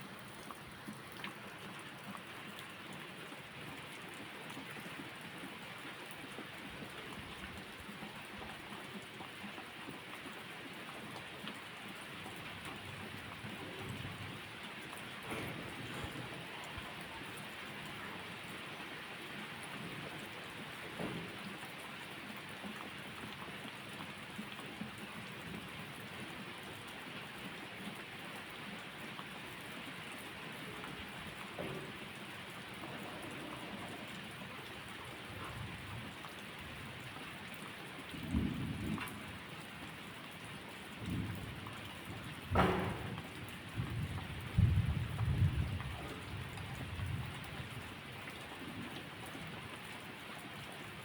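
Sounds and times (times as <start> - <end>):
steady rain falling: 0.0 - 51.0
low rumbles of thunder: 38.2 - 39.4, 41.0 - 47.8.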